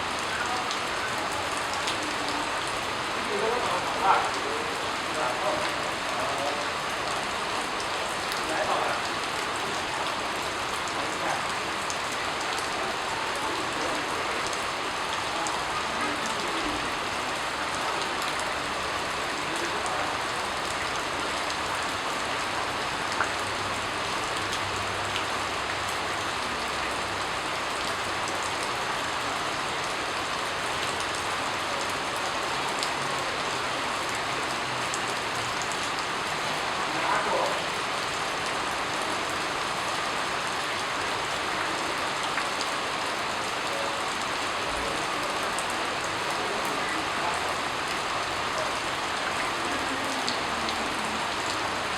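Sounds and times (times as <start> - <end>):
steady rain falling: 0.0 - 51.9.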